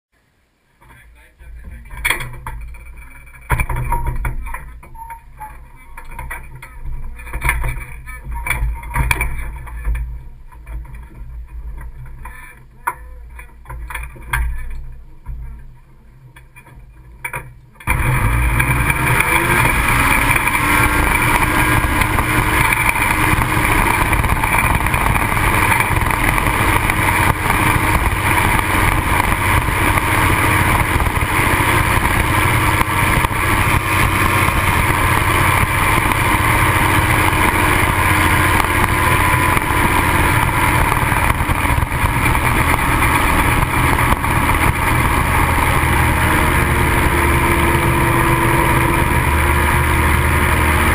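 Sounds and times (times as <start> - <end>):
ultralight aircraft engine drone: 16.6 - 50.9
wind rushing over camera: 18.1 - 50.9.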